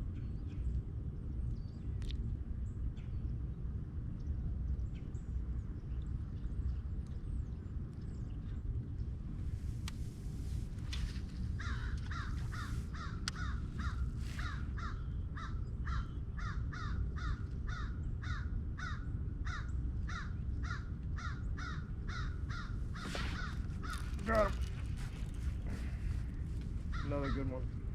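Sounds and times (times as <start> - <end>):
steady low rumble: 0.0 - 27.9
bird calling with harsh notes: 11.6 - 26.2, 26.8 - 27.7.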